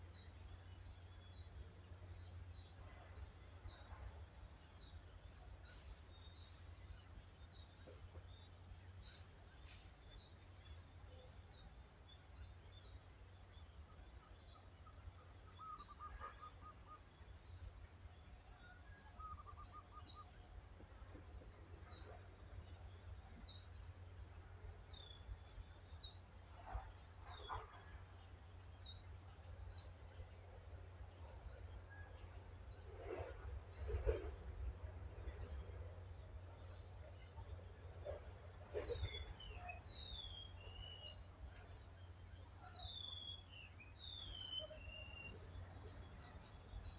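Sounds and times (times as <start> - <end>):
small birds chirping: 32.7 - 46.9.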